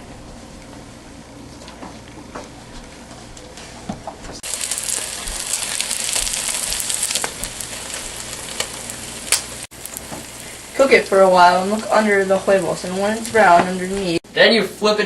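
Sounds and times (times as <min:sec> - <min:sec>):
eggs sizzling in hot oil: 0:04.4 - 0:14.2.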